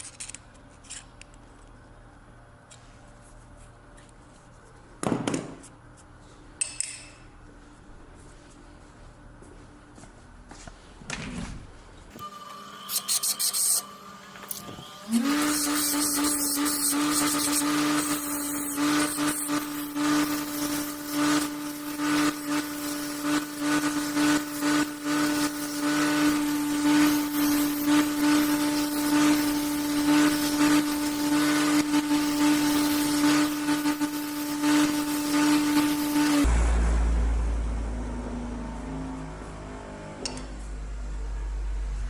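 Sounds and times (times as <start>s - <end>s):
electric power tool humming: 12.2s - 36.5s.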